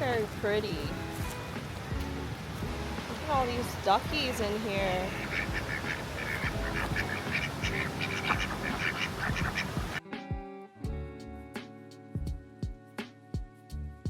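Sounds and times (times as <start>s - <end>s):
background music with plucked notes: 0.0s - 14.0s
ducks quacking: 4.8s - 10.0s.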